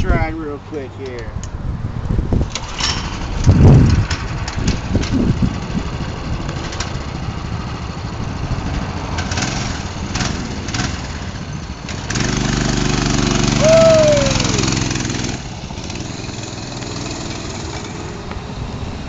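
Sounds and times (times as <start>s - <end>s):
small engine running: 5.2s - 19.0s.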